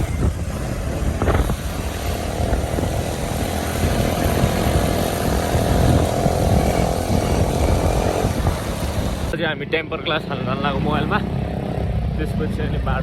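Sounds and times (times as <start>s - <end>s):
small motorbike engine running: 0.0s - 9.4s
wind buffeting microphone: 0.0s - 9.4s.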